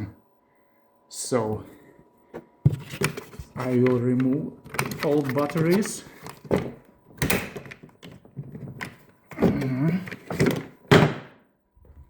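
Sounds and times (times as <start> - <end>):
plastic battery clicks and thunks: 6.3 - 11.4.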